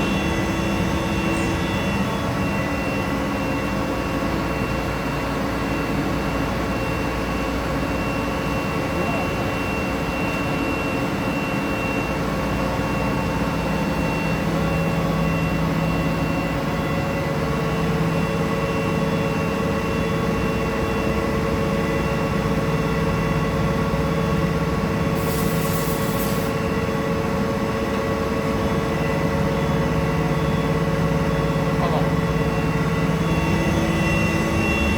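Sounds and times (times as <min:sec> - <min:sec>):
machine humming: 0:00.0 - 0:20.4, 0:24.9 - 0:34.9.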